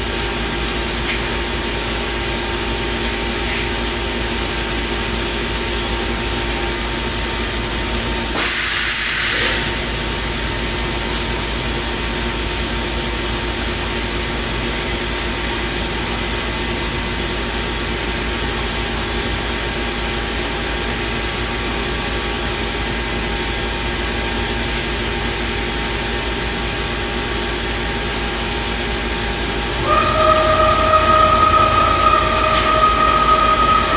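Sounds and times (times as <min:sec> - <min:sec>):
loud hiss: 0:08.4 - 0:09.8
machine hum: 0:29.7 - 0:33.9.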